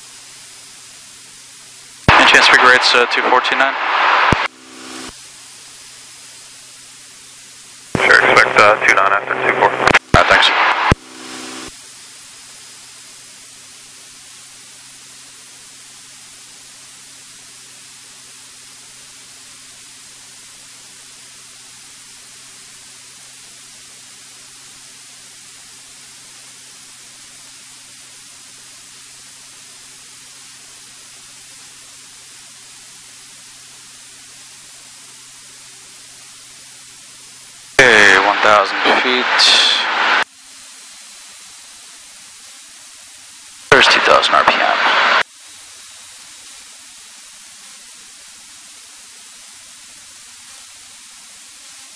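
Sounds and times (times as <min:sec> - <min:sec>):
intercom hiss: 0:02.0 - 0:12.0, 0:36.1 - 0:41.9, 0:43.5 - 0:45.3.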